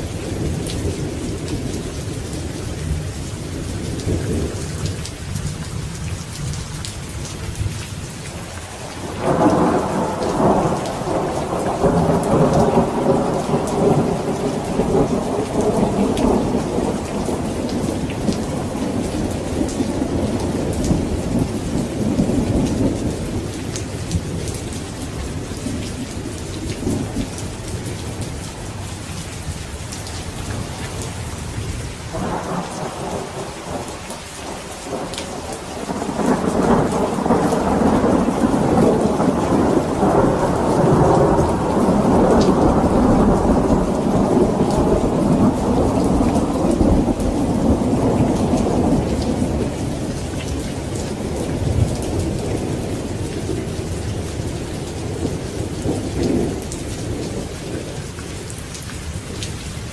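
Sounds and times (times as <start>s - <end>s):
heavy rain: 0.0s - 59.9s
thunder rumbling: 9.0s - 28.7s, 30.2s - 58.0s.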